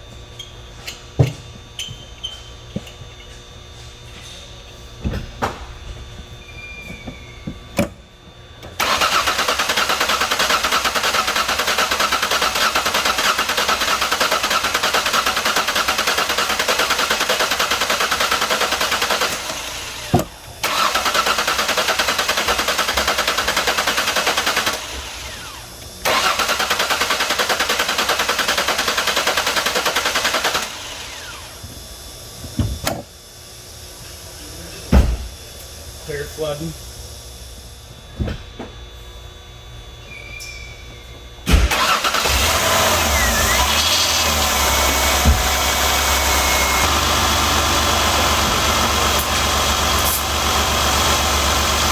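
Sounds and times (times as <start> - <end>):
engine starter cranking: 8.8 - 31.4, 41.5 - 51.9.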